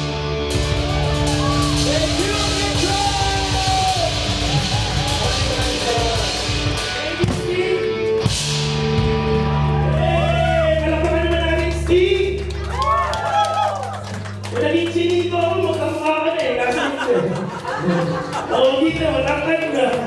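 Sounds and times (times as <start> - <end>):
live rock band playing: 0.0 - 11.8
drum kit: 0.0 - 12.0.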